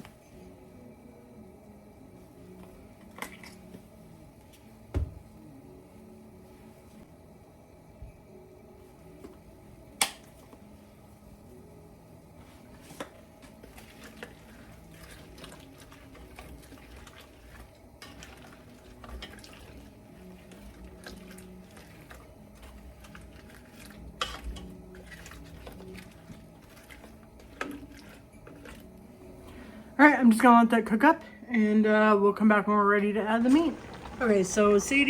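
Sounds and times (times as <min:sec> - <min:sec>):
food sizzling in a pan: 0:33.4 - 0:35.0.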